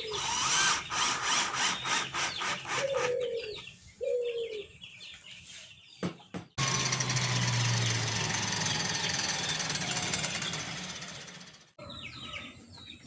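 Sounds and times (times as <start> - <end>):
power tool humming: 0.1 - 3.1, 6.6 - 11.6
power tool rattle: 6.6 - 11.7.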